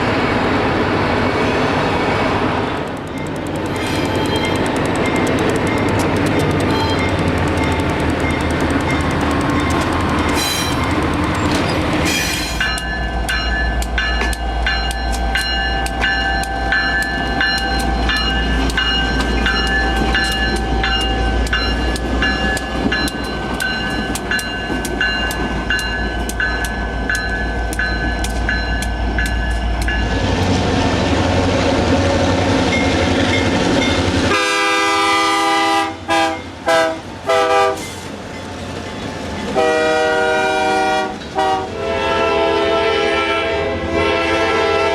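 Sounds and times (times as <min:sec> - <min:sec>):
train rumbling past: 0:00.0 - 0:44.9
wheels clicking over rail joints: 0:02.8 - 0:30.1
locomotive air horn blasts: 0:34.3 - 0:37.9, 0:39.6 - 0:44.9.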